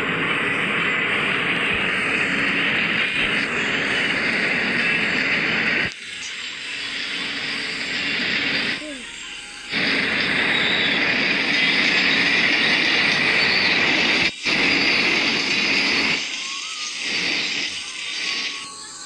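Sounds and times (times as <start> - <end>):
train wheels rushing on rails: 0.0 - 5.9, 9.7 - 18.5.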